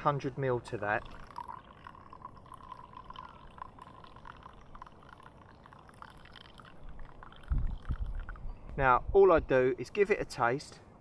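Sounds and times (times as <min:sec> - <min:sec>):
small drips: 0:00.5 - 0:08.4
water pouring into a mug: 0:00.6 - 0:08.4.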